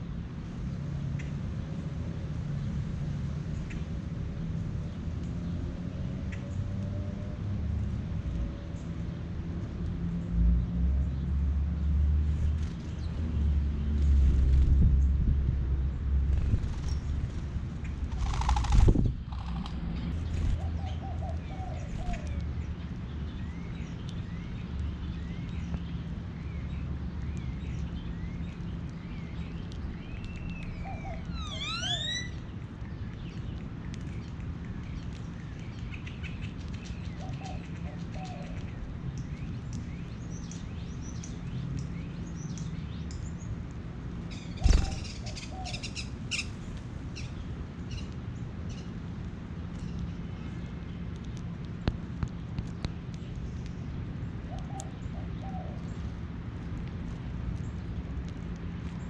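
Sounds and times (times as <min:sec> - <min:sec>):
songbirds chirping: 0:08.0 - 0:59.0
low hum: 0:09.6 - 0:35.9.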